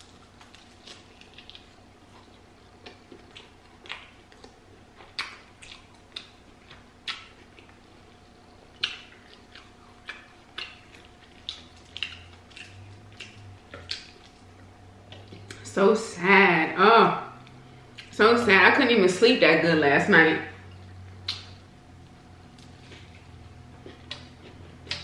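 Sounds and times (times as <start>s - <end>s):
sandwich being chewed: 0.0s - 15.6s, 20.7s - 25.0s.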